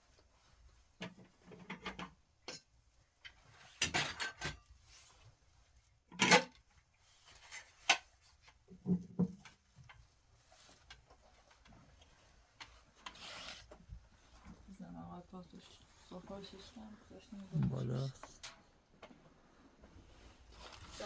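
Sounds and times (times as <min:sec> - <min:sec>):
dishes and utensils clattering: 0:03.7 - 0:04.7, 0:06.1 - 0:06.6.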